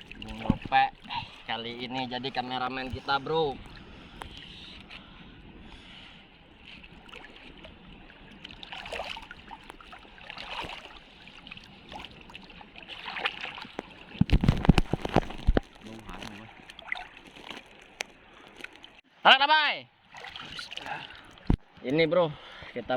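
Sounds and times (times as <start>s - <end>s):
sea water sloshing: 0.0s - 19.1s, 20.0s - 21.8s.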